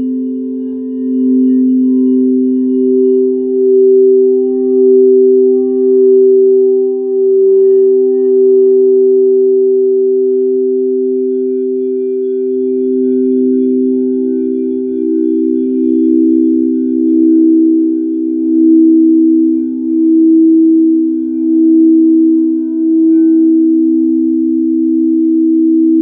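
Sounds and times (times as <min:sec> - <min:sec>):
singing bowls ringing: 0:00.0 - 0:26.0.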